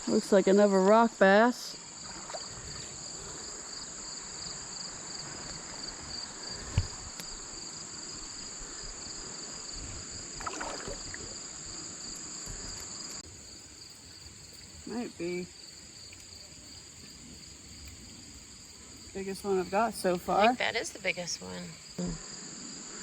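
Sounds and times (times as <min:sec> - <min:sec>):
shrill insects chorus: 0:00.1 - 0:23.0
creek water rushing: 0:10.2 - 0:22.0.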